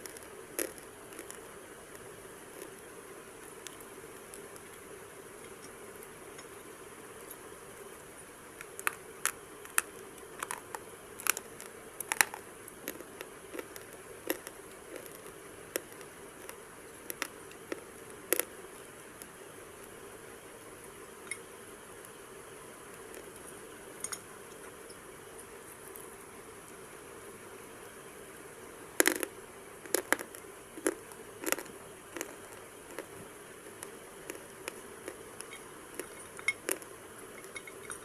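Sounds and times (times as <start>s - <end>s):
faint steady hiss: 0.0s - 38.0s
sharp crunches and crackles: 8.6s - 18.5s, 29.9s - 36.9s.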